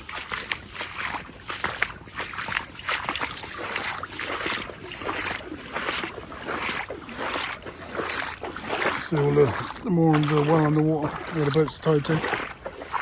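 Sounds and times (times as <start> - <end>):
wading through water: 0.0 - 13.0.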